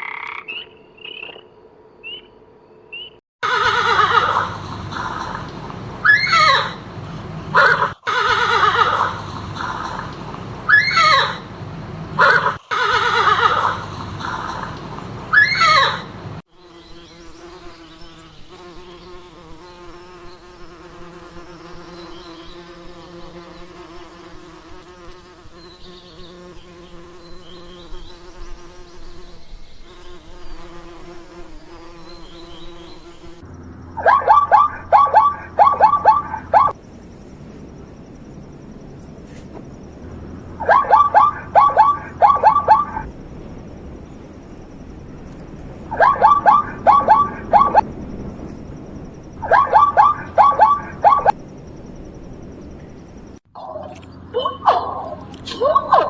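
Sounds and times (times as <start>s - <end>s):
horse whinnying: 3.4s - 4.5s, 7.6s - 9.2s, 12.2s - 13.9s
short loud falling calls: 3.4s - 16.4s, 33.5s - 56.0s
bee buzzing: 3.5s - 17.6s, 33.2s - 53.4s.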